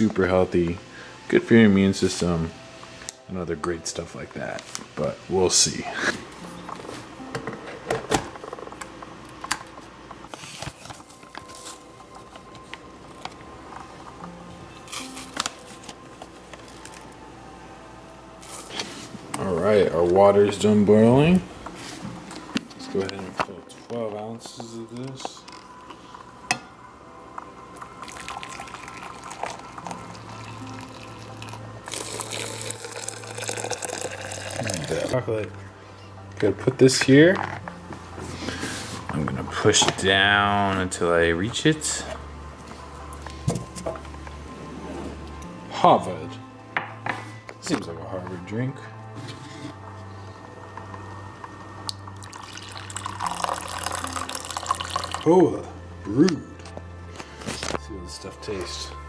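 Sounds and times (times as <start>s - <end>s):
water pouring: 28.0s - 35.2s, 52.2s - 55.3s.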